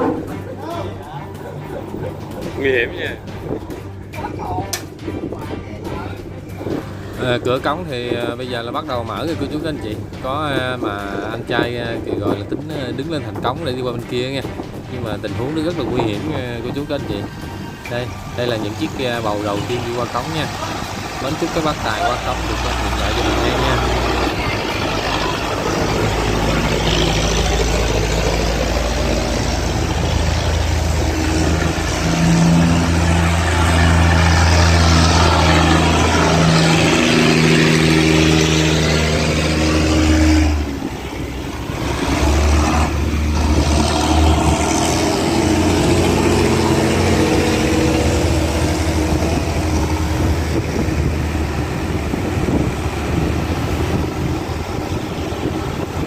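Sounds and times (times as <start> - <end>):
boat engines running hard: 0.0 - 56.0
rushing water: 13.7 - 56.0.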